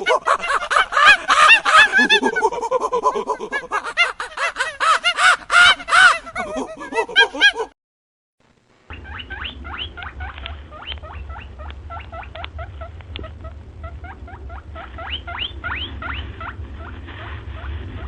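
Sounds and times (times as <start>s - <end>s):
steady low hum: 8.4s - 18.0s
small animal squeaking: 8.9s - 18.0s.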